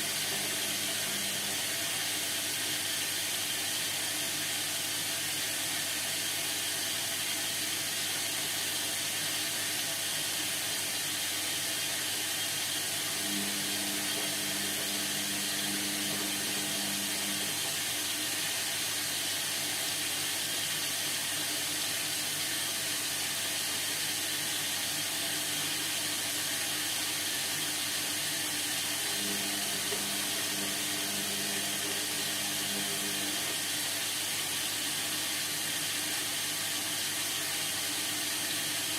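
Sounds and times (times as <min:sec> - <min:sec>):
washing machine drum motor humming: 0:00.0 - 0:38.9
water hissing in washing machine: 0:00.0 - 0:38.9.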